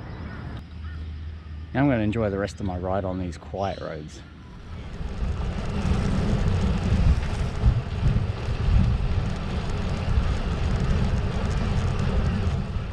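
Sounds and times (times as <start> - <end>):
wind buffeting microphone: 4.6 - 12.9.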